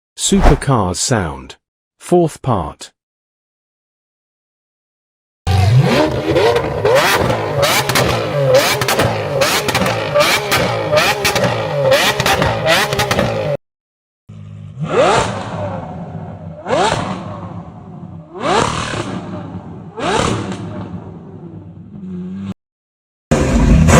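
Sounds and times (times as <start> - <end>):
car engine revving with cracks: 5.5 - 13.6, 16.6 - 17.4, 18.3 - 21.1.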